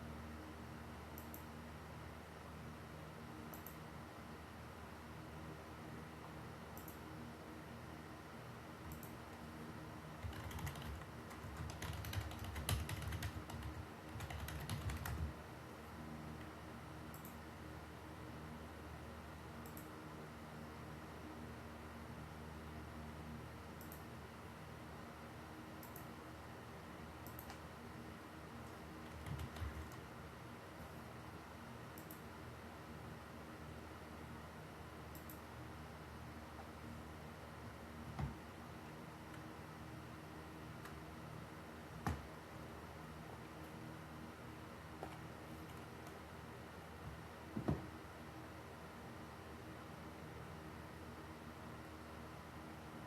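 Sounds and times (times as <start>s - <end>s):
computer keyboard typing: 10.1s - 15.3s, 25.8s - 26.1s, 27.2s - 27.6s, 29.0s - 30.0s.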